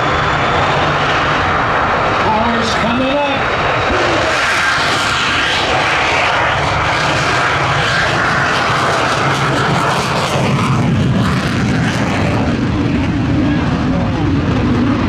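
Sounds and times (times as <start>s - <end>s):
deep rumble: 0.0s - 15.0s
jet engines roaring: 0.0s - 15.0s.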